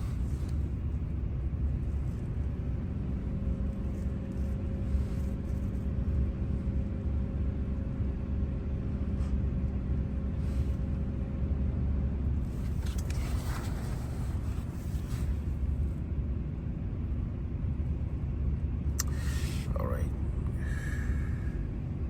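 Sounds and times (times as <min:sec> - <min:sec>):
faint steady hum: 0:00.0 - 0:22.0
low mechanical rumble: 0:00.0 - 0:22.0
rustling: 0:12.6 - 0:15.5.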